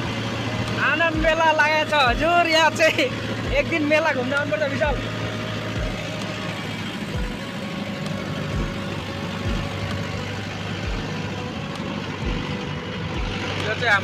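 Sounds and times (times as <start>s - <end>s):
tractor engine running: 0.0s - 14.0s
low thudding bumps: 4.8s - 11.3s.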